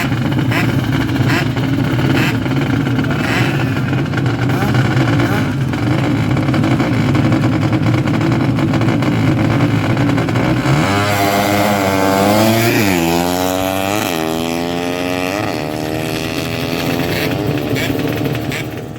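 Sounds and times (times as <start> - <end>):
motorcycle engine accelerating: 0.0 - 18.9.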